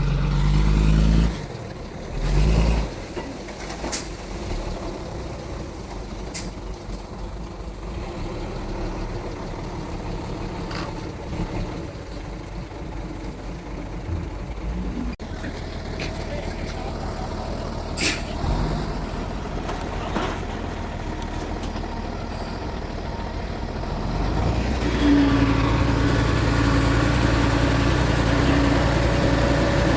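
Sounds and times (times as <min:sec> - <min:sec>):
bulldozer diesel engine: 0:00.0 - 0:29.9.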